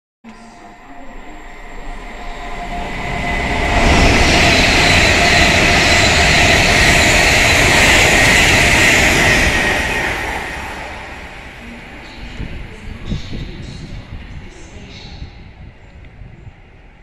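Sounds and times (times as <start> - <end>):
faint high whine: 0.3 - 6.7
passenger train passing: 0.3 - 17.0.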